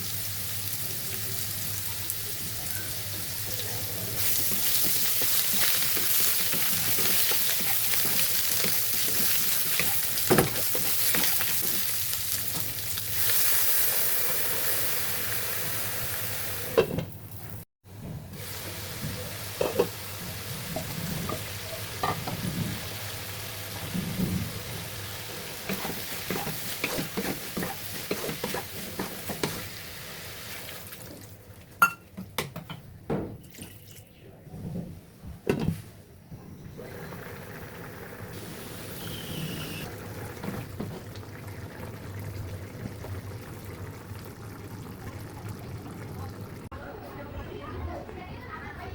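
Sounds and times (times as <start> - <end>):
food sizzling in hot oil: 0.0 - 16.8.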